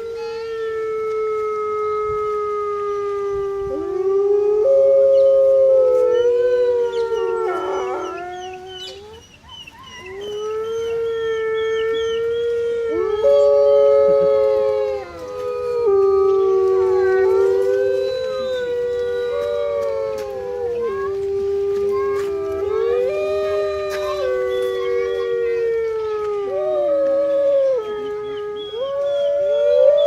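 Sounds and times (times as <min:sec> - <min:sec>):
wolves howling: 0:00.0 - 0:30.0
high yipping calls: 0:06.9 - 0:12.6.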